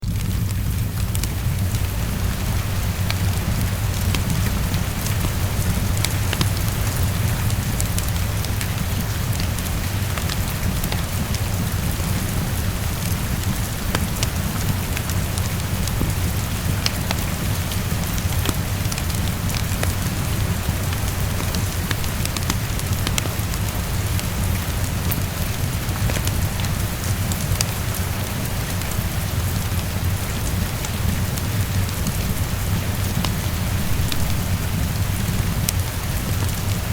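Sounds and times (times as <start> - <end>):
low rumble: 0.0 - 25.3
heavy rain on a window: 0.0 - 36.9
wood fire crackling: 0.0 - 36.9.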